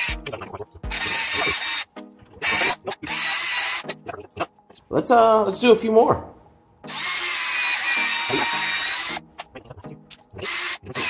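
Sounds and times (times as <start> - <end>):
cordless drill whining: 0.9 - 1.8, 2.4 - 3.8, 6.9 - 9.2.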